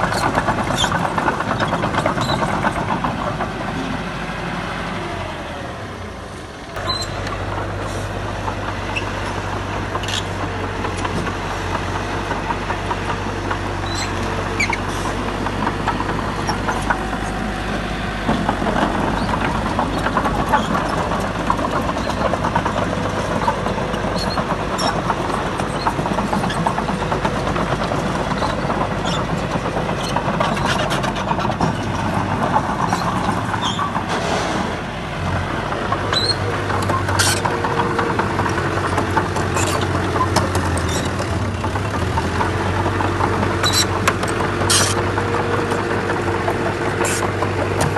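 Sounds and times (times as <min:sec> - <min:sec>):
diesel machinery running: 0:00.0 - 0:47.9.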